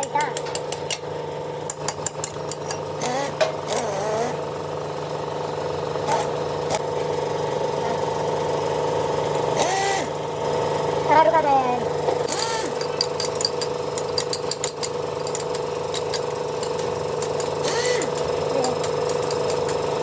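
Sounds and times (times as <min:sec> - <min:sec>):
voices: 0:11.1 - 0:12.0, 0:18.5 - 0:18.9.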